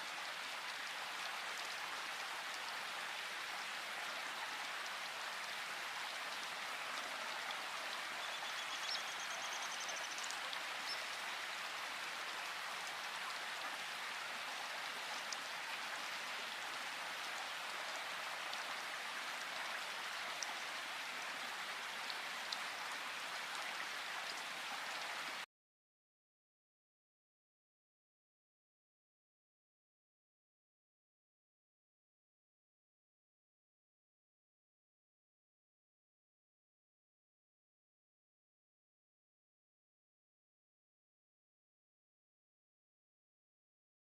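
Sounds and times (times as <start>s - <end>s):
rain falling in forest: 0.0s - 25.5s
faint high bird calls: 8.2s - 11.2s.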